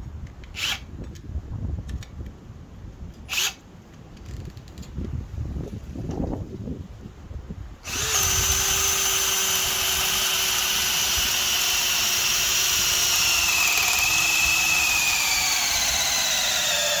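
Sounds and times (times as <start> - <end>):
cordless drill motor whine: 7.8 - 17.0.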